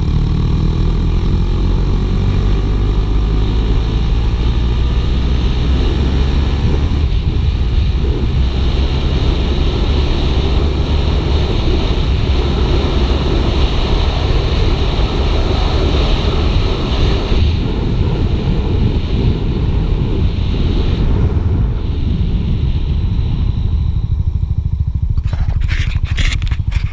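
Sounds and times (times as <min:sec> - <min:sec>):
motorcycle engine running: 0:00.0 - 0:26.9
wind rushing over microphone: 0:00.0 - 0:26.9.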